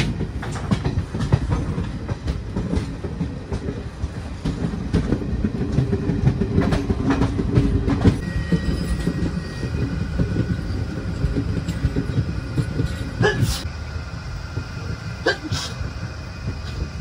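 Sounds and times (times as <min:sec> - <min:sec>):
wheels clattering over rail joints: 0:00.0 - 0:13.7
rumble of train wheels on rails: 0:00.0 - 0:17.0.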